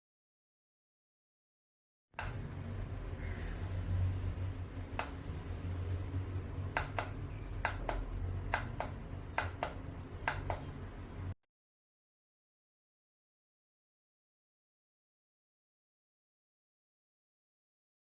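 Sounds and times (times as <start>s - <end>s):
diffuser clicks: 2.2s - 2.5s, 4.9s - 5.2s, 6.7s - 10.8s
steady low hum: 2.2s - 11.4s.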